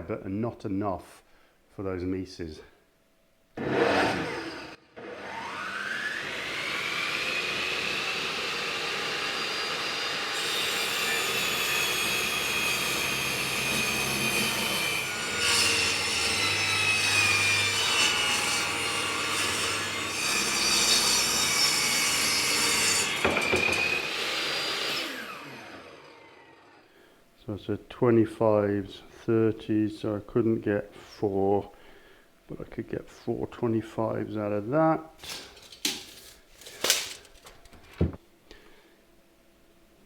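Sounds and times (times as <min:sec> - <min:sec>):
electric saw cutting wood: 0:03.6 - 0:26.8.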